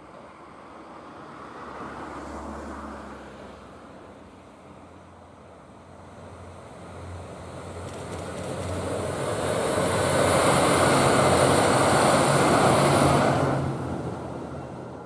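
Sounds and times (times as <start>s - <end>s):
diesel train passing: 5.6s - 15.0s.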